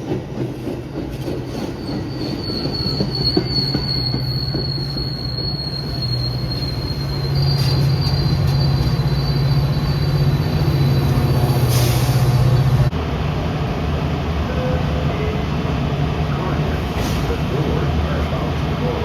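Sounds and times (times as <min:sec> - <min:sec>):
train rumbling on rails: 0:00.0 - 0:19.0
high wheel squeal: 0:01.5 - 0:12.7.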